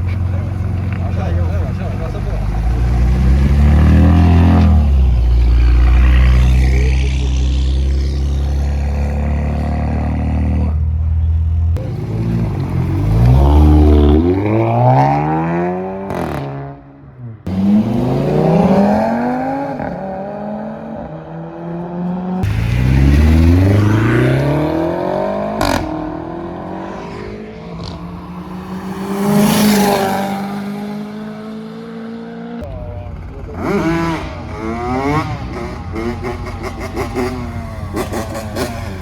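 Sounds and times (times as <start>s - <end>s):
car engines accelerating: 0.0s - 39.0s.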